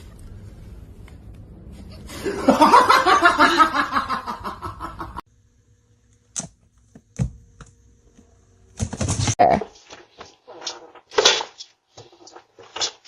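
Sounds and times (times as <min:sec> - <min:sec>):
person laughing: 0:02.0 - 0:05.2.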